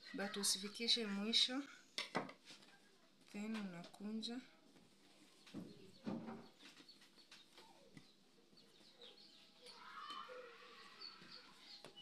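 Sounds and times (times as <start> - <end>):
faint bird chirps: 5.3 - 12.0.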